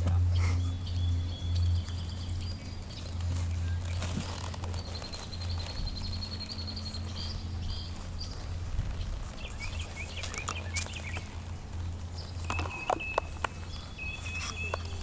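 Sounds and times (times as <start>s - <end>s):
birds chirping: 0.0s - 15.0s
low outdoor rumble: 0.0s - 15.0s
thin high bird trill: 12.2s - 15.0s.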